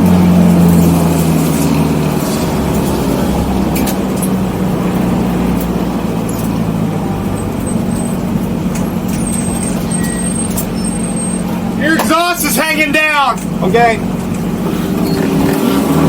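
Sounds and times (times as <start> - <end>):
car engine running: 0.0 - 16.0
road and wind noise: 0.0 - 16.0.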